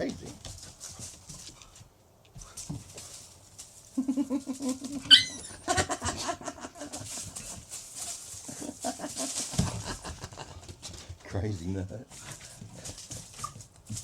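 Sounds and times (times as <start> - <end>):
dog yelping: 5.0 - 6.0.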